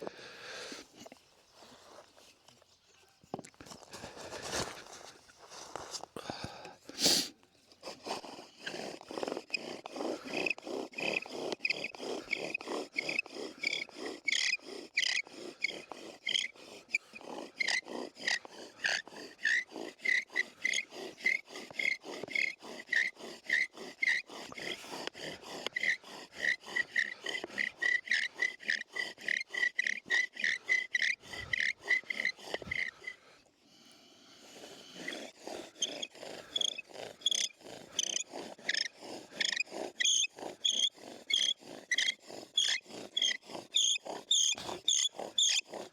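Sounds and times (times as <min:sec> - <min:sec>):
bow drill squeaking and rasping: 0:08.3 - 0:33.2, 0:35.0 - 0:45.9.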